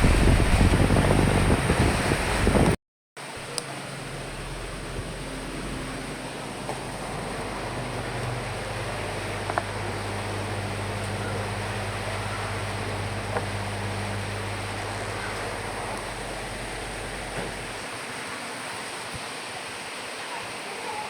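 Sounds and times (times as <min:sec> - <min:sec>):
low hum: 0:00.0 - 0:02.4, 0:03.4 - 0:17.8
rain and wind hiss: 0:00.0 - 0:21.0.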